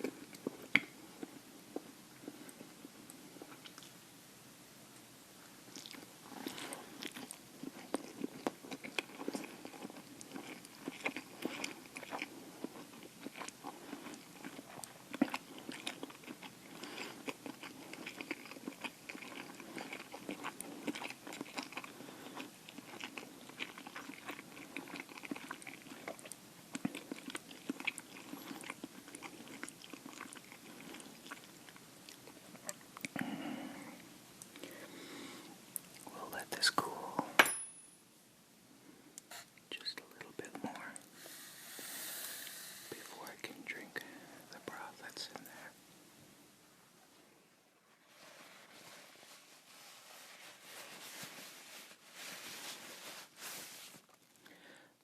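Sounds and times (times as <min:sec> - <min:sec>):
chewing noodles: 0:00.0 - 0:04.0, 0:05.7 - 0:34.7
wet mouth sounds: 0:03.4 - 0:04.0.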